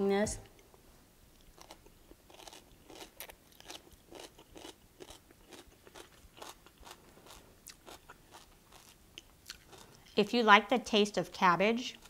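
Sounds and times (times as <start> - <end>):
person chewing crunchy food: 1.3 - 10.2.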